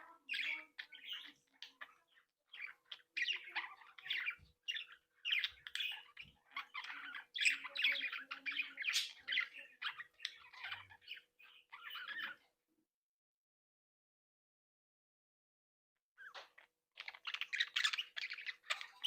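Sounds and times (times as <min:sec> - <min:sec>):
budgerigars chattering: 0:00.1 - 0:12.5, 0:16.2 - 0:19.0.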